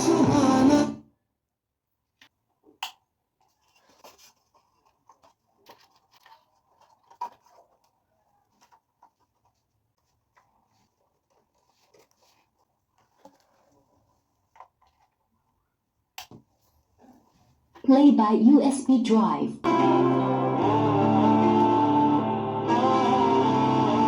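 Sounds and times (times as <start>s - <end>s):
song through a speaker: 0.0s - 1.0s, 19.6s - 24.0s
faint clicks and scratching: 3.3s - 15.8s.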